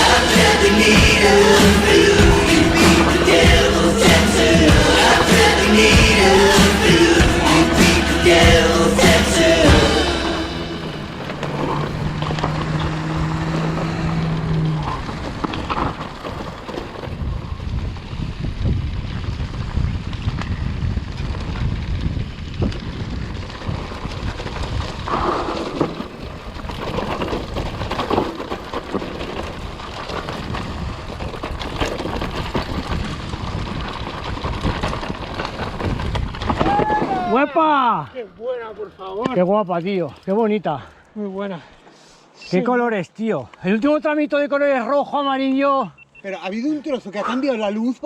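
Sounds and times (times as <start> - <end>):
steady hum: 0.0 - 16.2
wind buffeting microphone: 0.0 - 37.2
bike rattling and knocking: 0.0 - 37.3
tyres rumbling on dirt: 0.0 - 42.0.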